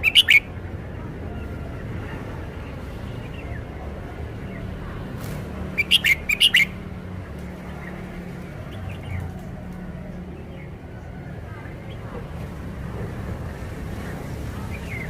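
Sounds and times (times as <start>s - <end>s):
bird singing sharp notes: 0.0s - 0.5s, 5.7s - 6.8s
faint bird chirps: 0.0s - 0.5s.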